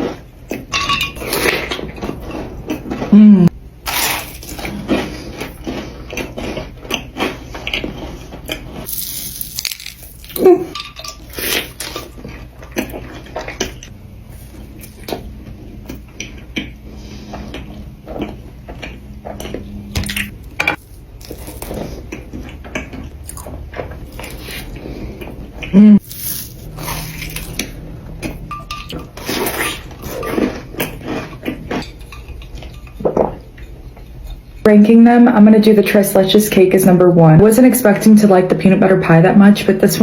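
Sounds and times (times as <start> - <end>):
cookie bites and crunches: 8.8 - 10.4.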